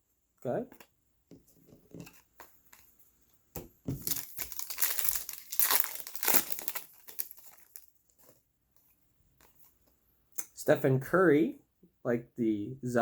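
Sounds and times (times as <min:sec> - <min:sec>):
wrapper crinkling and tearing: 0:04.0 - 0:08.3.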